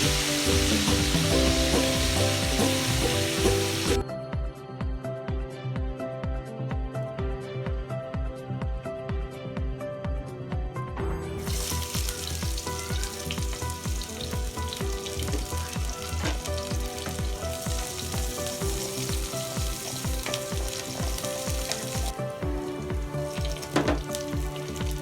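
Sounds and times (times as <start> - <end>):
food sizzling in hot oil: 0.0 - 4.0, 11.4 - 25.0
background music with steady beat: 0.0 - 25.0.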